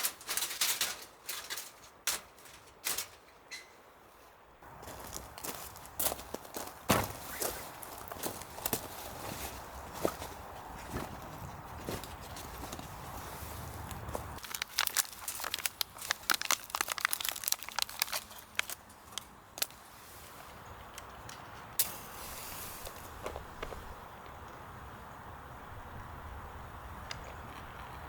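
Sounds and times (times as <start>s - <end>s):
crinkling crackling handling noise: 0.0s - 3.7s, 4.8s - 23.9s
faint steady hiss: 18.8s - 27.3s.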